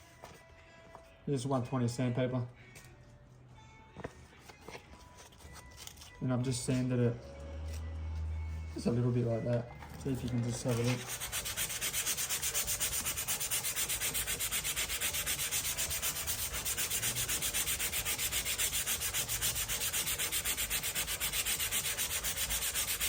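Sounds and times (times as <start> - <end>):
sandpaper rubbing on wood: 10.7 - 23.0.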